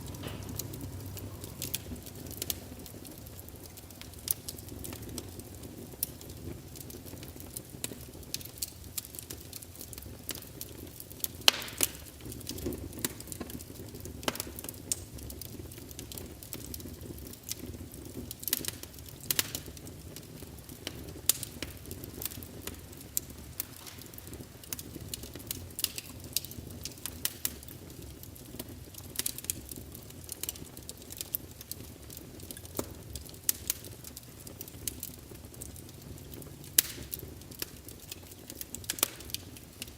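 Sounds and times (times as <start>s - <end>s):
flame rushing: 0.0s - 9.1s, 16.6s - 27.8s
wood fire crackling: 0.0s - 39.9s.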